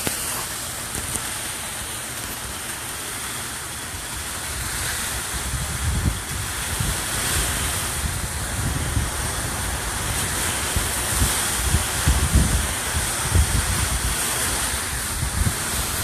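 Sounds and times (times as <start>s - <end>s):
wind gusts buffeting microphone: 3.8s - 16.0s
strong wind blowing: 3.9s - 16.0s.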